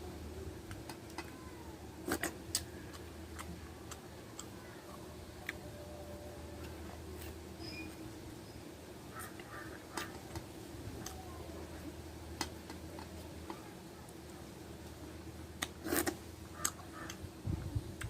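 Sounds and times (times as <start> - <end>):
steady low hum: 0.0 - 18.0
chewing clicks and smacks: 15.6 - 17.2.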